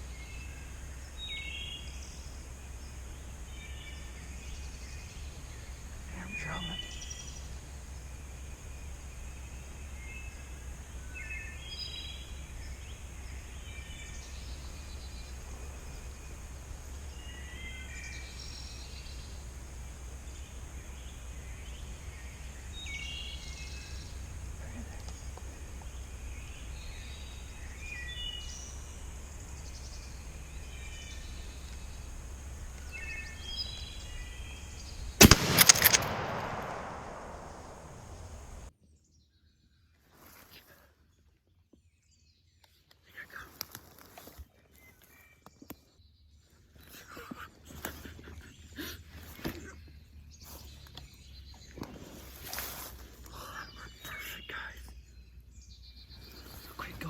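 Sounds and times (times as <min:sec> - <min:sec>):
songbirds chirping: 0:00.0 - 0:38.7, 0:53.3 - 0:57.0
shotgun blast with echo: 0:35.2 - 0:38.7.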